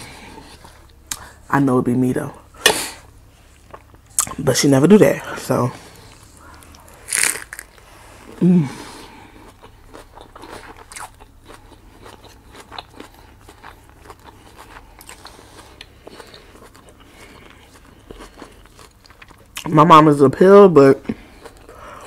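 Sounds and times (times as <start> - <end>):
crunchy chewing: 5.9 - 7.9, 9.0 - 19.7
person humming: 8.3 - 9.0.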